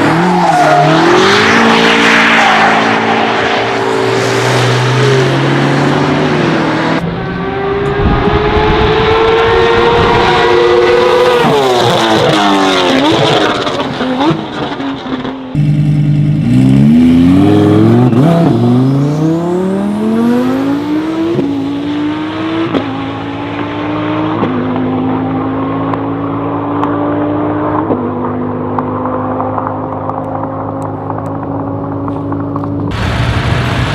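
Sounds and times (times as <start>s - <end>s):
supercar engines revving: 0.0s - 33.9s.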